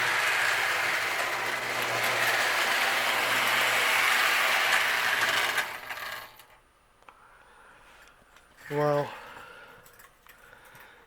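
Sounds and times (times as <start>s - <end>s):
toy train mechanical rattle: 0.0s - 6.6s.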